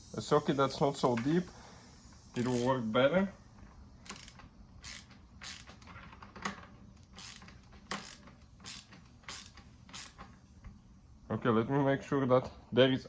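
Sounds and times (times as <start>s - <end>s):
ratchet wrench clicking: 2.3s - 2.9s, 4.0s - 6.2s, 7.0s - 10.3s.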